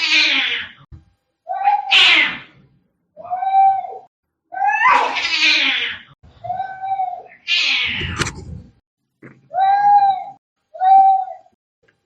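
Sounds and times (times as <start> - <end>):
cats yowling and screeching: 0.0 - 0.9, 1.5 - 2.6, 3.2 - 8.2, 9.5 - 11.6.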